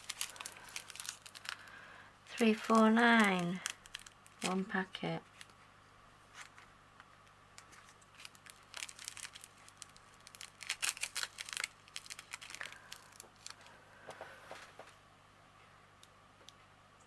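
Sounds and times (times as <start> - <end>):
plastic packets crinkling: 0.0 - 5.6, 7.6 - 14.9.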